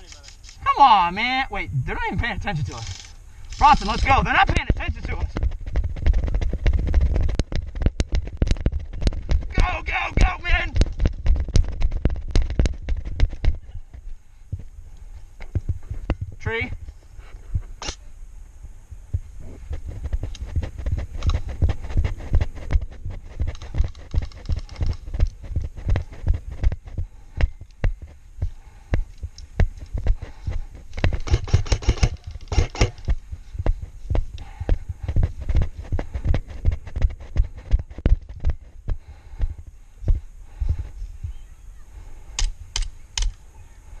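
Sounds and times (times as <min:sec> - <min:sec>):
sharp cracks: 0:01.8 - 0:13.6
running footfalls and gear thuds: 0:03.6 - 0:14.7, 0:19.1 - 0:41.0.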